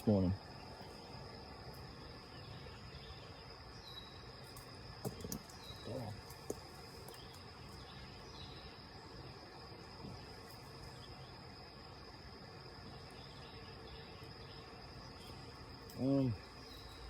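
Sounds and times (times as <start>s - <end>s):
insects droning: 0.0s - 17.0s
bird-like chirps: 1.8s - 4.5s, 5.1s - 6.4s, 12.9s - 17.0s.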